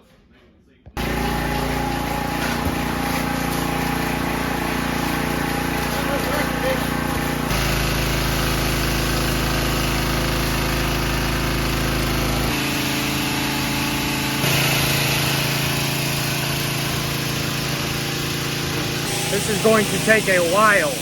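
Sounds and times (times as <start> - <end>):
water spray hiss: 1.0 - 11.2, 12.5 - 21.0
pressure washer engine running: 1.0 - 21.0.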